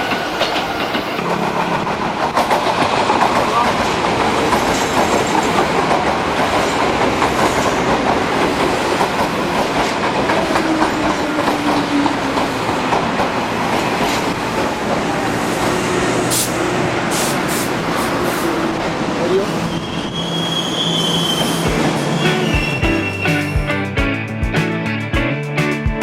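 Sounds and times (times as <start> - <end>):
train wheels clattering over rails: 0.0 - 18.6.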